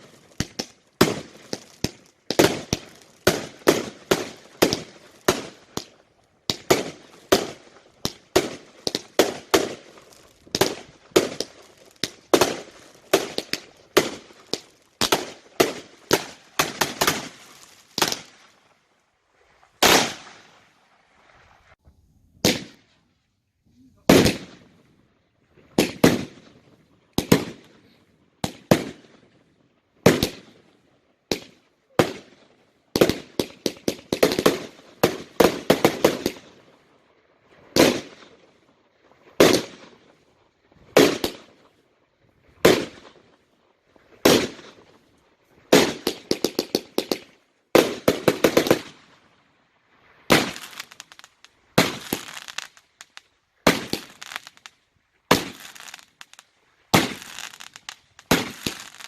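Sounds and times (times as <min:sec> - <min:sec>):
firework bangs: 0:00.0 - 0:18.6, 0:19.8 - 0:20.8, 0:22.4 - 0:22.9, 0:24.0 - 0:24.7, 0:25.7 - 0:26.6, 0:27.2 - 0:29.2, 0:31.3 - 0:36.6, 0:37.6 - 0:38.4, 0:39.4 - 0:40.2, 0:40.8 - 0:41.6, 0:42.5 - 0:43.3, 0:44.2 - 0:45.0, 0:45.7 - 0:49.2, 0:50.3 - 0:54.7, 0:55.3 - 0:59.0
fireworks crackling: 0:00.0 - 0:23.1, 0:23.7 - 0:24.9, 0:25.5 - 0:59.0.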